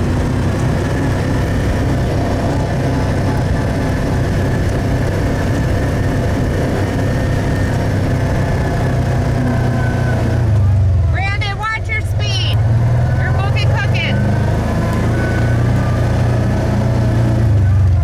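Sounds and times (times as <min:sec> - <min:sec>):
vehicle engine running steadily: 0:00.0 - 0:18.0.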